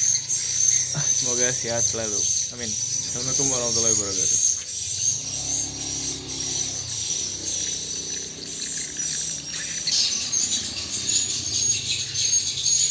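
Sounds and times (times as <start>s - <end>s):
high-pitched chirping and trilling: 0.0s - 12.9s.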